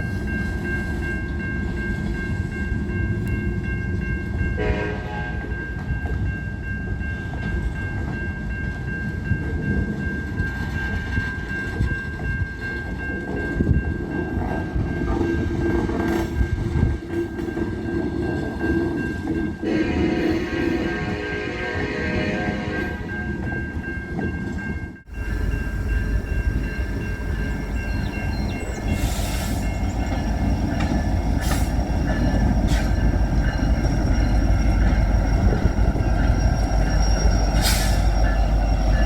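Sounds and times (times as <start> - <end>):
freight train rumbling by: 0.0 - 39.0
locomotive horn: 4.6 - 5.6, 19.6 - 23.4.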